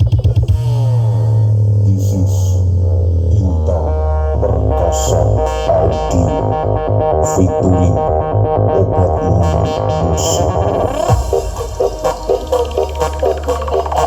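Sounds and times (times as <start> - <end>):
electronic dance music: 0.0 - 14.0
heavy pulsing bass: 0.0 - 14.0.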